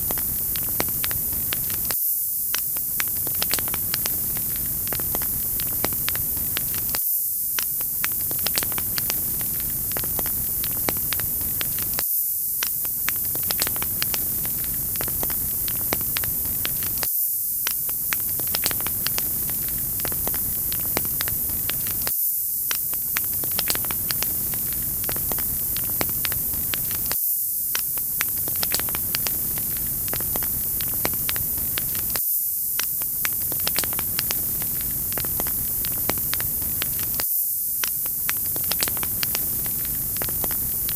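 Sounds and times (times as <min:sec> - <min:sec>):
wood fire crackling: 0:00.0 - 0:07.0, 0:07.6 - 0:12.0, 0:12.7 - 0:17.1, 0:17.7 - 0:22.1, 0:22.7 - 0:27.2, 0:27.8 - 0:32.2, 0:32.8 - 0:37.2, 0:37.8 - 0:40.9.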